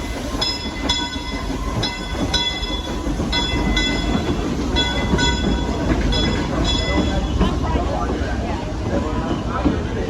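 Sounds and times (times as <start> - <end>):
train rumbling on rails: 0.0 - 10.0.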